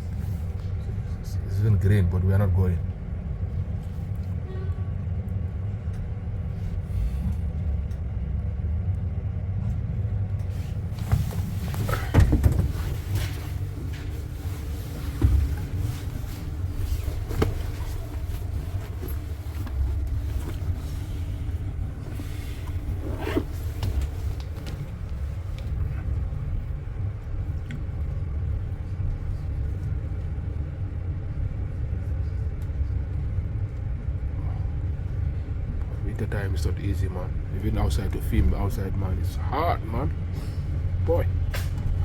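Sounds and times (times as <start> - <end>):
bus engine and road rumble: 0.0 - 42.0
knocks and rattles: 11.0 - 14.1.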